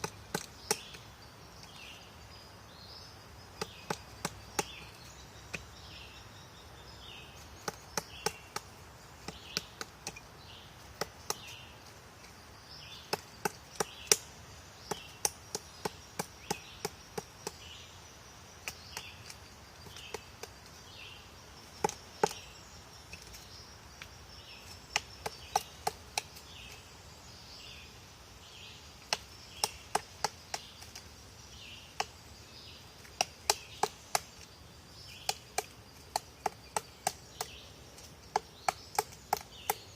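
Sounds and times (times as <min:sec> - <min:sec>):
woodpecker pecking at wood: 0:00.0 - 0:01.8, 0:03.5 - 0:05.9, 0:07.2 - 0:17.7, 0:18.5 - 0:20.9, 0:21.6 - 0:26.8, 0:29.0 - 0:32.3, 0:33.0 - 0:39.9.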